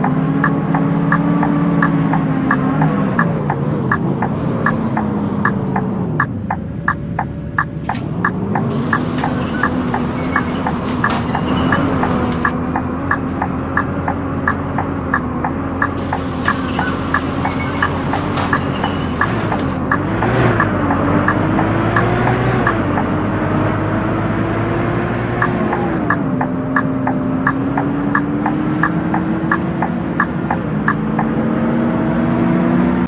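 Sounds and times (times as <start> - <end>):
sharp regular clicking of wheels: 0.0 - 23.6, 25.4 - 31.4
bus diesel engine: 0.0 - 33.0.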